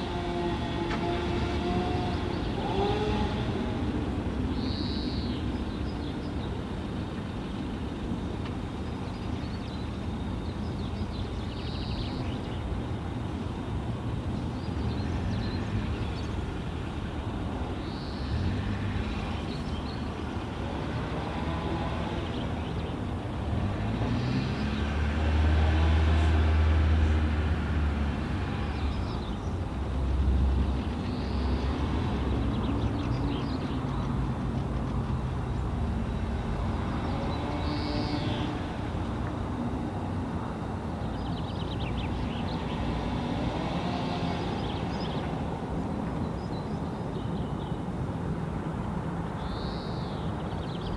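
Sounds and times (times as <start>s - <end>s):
distant vehicle engine passing: 0.0s - 4.5s, 14.8s - 46.3s.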